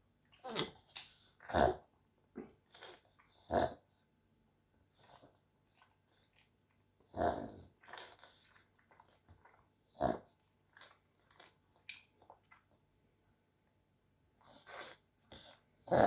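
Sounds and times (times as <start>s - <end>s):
dog snorting and sniffing: 2.4s - 3.9s, 7.0s - 11.0s, 14.4s - 16.0s.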